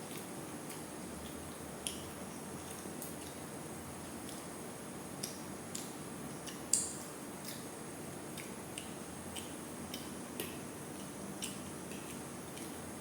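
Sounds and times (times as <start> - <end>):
mouth clicks and chewing: 0.0 - 3.5, 5.2 - 7.7, 8.3 - 13.0.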